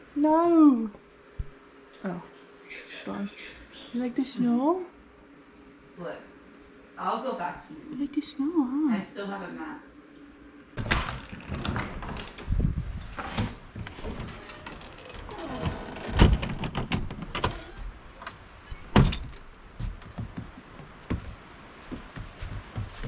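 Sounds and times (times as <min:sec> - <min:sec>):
faint creak: 0:13.8 - 0:18.0.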